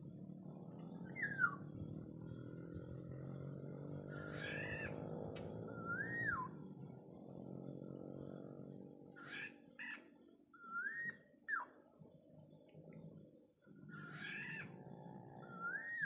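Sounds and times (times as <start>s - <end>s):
oriole fluting whistles: 5.7s - 6.5s, 10.6s - 11.3s.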